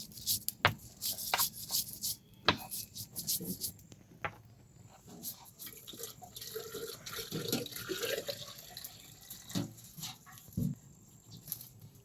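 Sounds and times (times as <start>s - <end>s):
water running or splashing: 5.6s - 10.0s.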